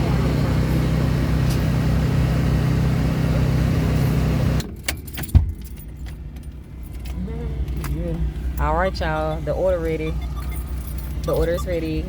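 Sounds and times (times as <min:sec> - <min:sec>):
engine hum: 0:00.0 - 0:12.0.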